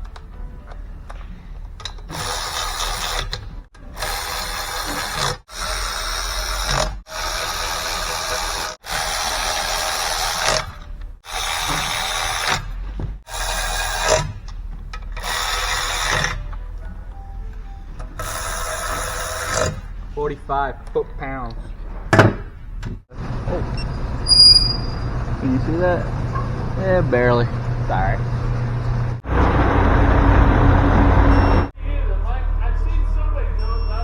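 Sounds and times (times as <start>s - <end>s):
power tool bursts: 2.1s - 16.6s, 18.2s - 19.9s.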